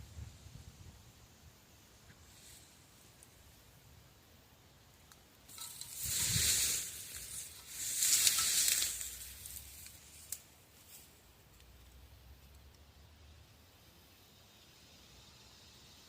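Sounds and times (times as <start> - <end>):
rustling hiss-like noise: 0.0 - 16.0
faint clicks: 5.0 - 10.5.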